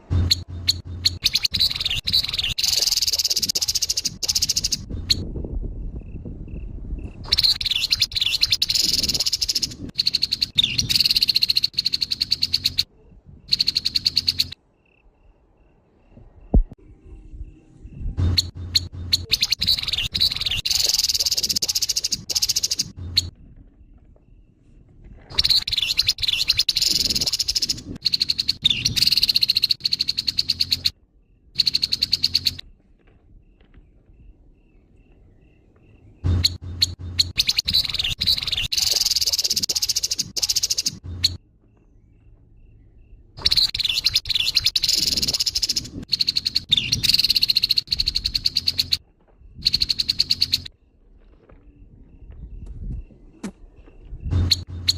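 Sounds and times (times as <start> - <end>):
bird rattling chatter: 0.1 - 4.9, 18.3 - 23.3, 36.4 - 41.4.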